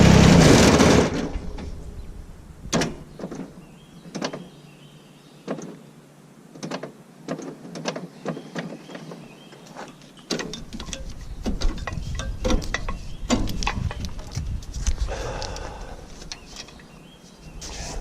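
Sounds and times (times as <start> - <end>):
low rumble: 0.0 - 3.2
irregular clicks and knocks: 2.7 - 4.5, 5.4 - 5.8, 6.5 - 9.2, 9.8 - 15.6.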